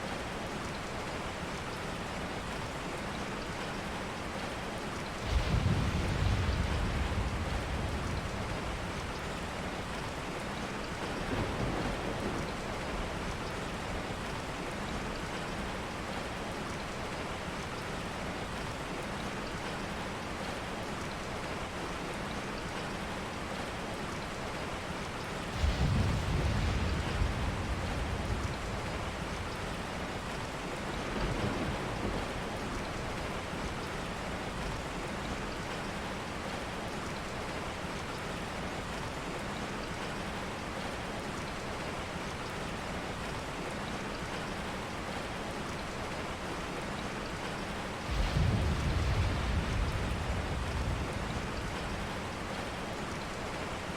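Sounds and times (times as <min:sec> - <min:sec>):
steady rain: 0:00.0 - 0:53.9
low rumble of thunder: 0:05.1 - 0:15.3, 0:25.4 - 0:35.8, 0:48.0 - 0:53.3.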